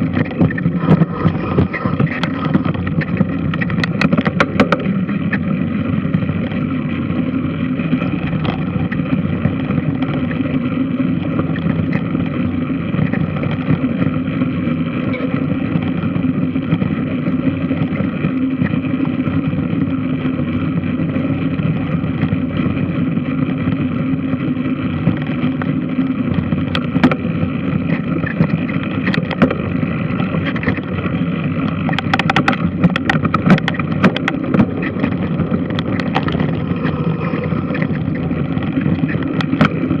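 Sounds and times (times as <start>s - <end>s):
washing machine running: 28.2s - 40.0s
sharp clicks or knocks: 31.9s - 34.7s.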